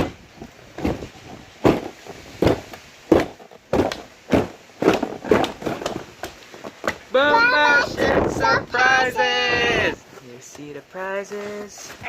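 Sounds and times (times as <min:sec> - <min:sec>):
short irregular knocks: 0:00.0 - 0:07.1.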